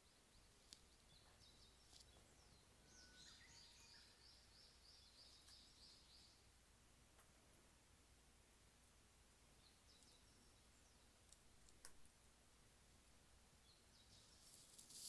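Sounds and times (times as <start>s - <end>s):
bush warbler birdsong: 0.0s - 6.5s, 9.6s - 11.2s, 13.6s - 15.0s.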